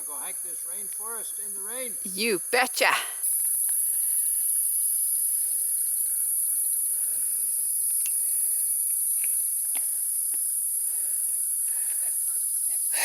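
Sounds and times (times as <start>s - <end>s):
insects hissing: 0.0s - 13.0s.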